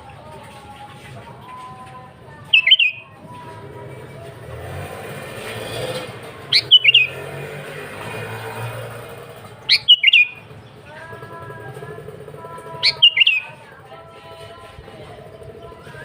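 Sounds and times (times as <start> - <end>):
bird singing whistled notes: 2.5 - 3.2, 6.5 - 7.3, 9.6 - 10.6, 12.8 - 13.6.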